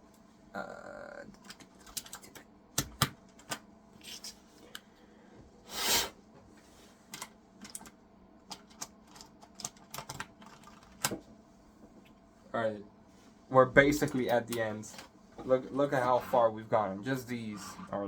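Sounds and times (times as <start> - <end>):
keyboard keys clicking: 1.4 - 3.6, 8.5 - 11.1.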